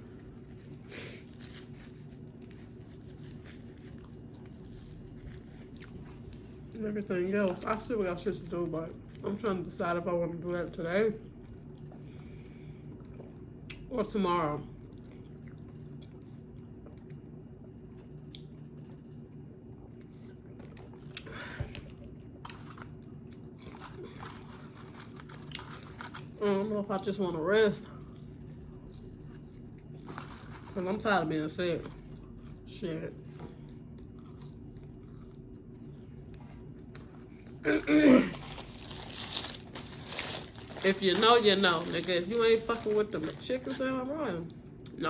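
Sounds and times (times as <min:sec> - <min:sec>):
chewing and eating: 0:00.0 - 0:07.7, 0:14.8 - 0:26.4, 0:27.9 - 0:31.0, 0:31.8 - 0:37.6
low background hum: 0:00.0 - 0:45.0
person chewing food: 0:14.9 - 0:17.2, 0:33.6 - 0:37.6.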